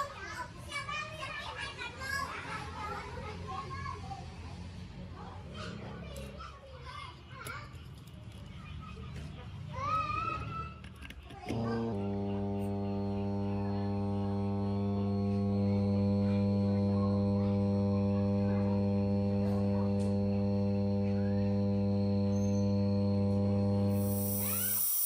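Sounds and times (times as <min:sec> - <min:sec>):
refrigerator compressor humming: 0:11.5 - 0:25.0.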